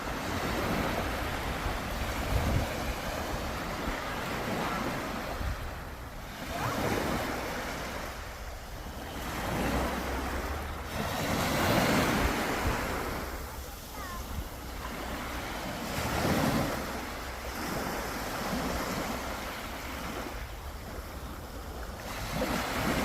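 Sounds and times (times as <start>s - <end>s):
sea waves breaking on shore: 0.0s - 23.0s.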